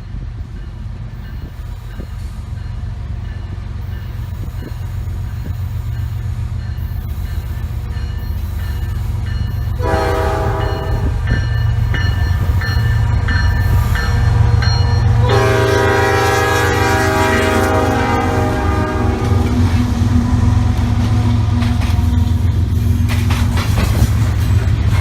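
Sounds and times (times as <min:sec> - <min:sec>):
heavy rumble of train: 0:00.0 - 0:25.0
locomotive air horn blast: 0:09.8 - 0:11.3, 0:15.1 - 0:21.5.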